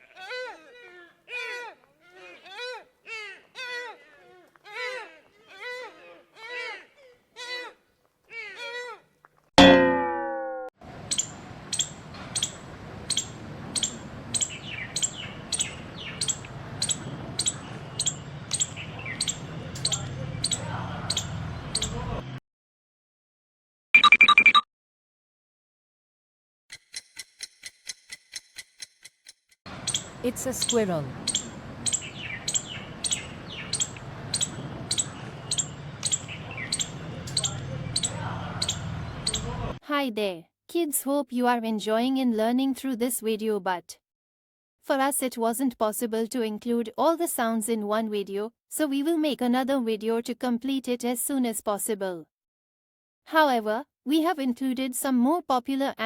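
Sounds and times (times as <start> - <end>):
chime ringing: 9.6 - 10.7
squirrel alarm calls: 10.9 - 22.0, 29.7 - 39.8.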